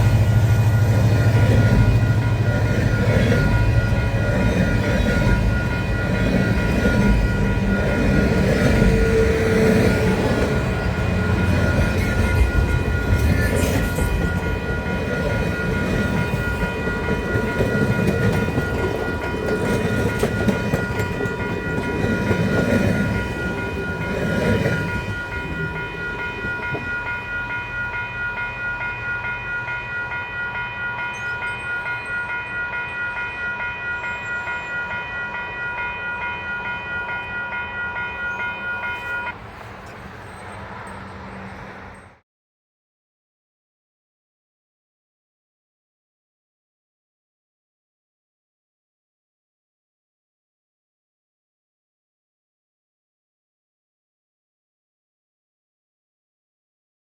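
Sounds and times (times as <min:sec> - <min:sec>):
level-crossing warning bell: 0:00.0 - 0:42.2
train rolling past: 0:00.0 - 0:42.2.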